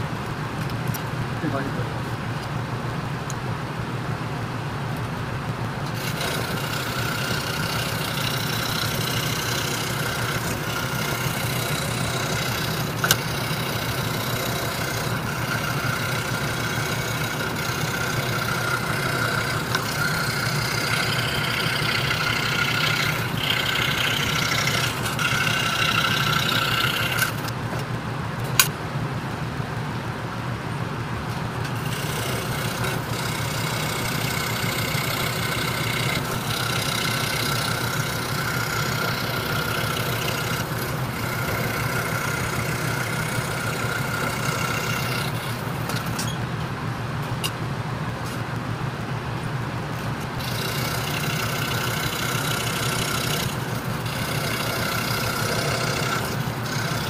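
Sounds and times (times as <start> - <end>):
saw motor hum: 4.7 - 27.9, 31.0 - 48.4, 49.4 - 57.0
scroll saw cutting plywood: 5.8 - 27.6, 31.6 - 46.4, 50.0 - 57.0.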